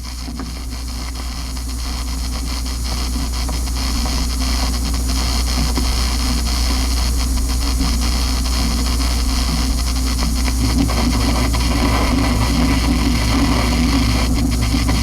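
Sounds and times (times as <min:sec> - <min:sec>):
constant low hum: 0:00.0 - 0:15.0
hiss and static noise: 0:00.0 - 0:15.0.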